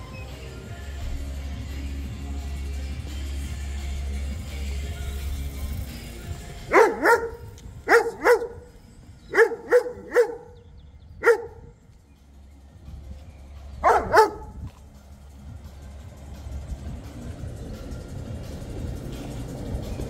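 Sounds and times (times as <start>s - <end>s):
dog barking: 6.6s - 8.7s, 9.3s - 10.6s, 11.2s - 11.7s, 13.8s - 14.6s.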